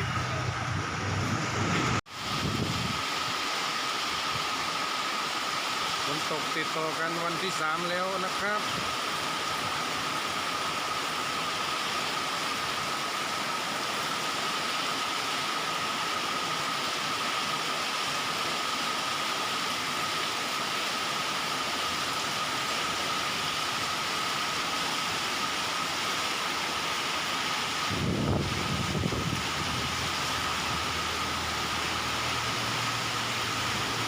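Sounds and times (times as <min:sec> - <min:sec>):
low rumble: 0:00.0 - 0:02.0
heavy rain falling: 0:09.2 - 0:34.0.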